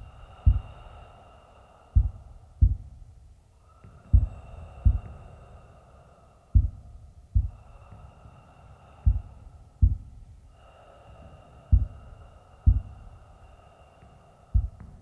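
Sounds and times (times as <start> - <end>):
heartbeat thumps: 0.0 - 0.8, 2.0 - 3.2, 4.1 - 5.2, 6.6 - 7.7, 9.0 - 10.4, 11.7 - 12.0, 12.6 - 13.0, 14.6 - 15.0.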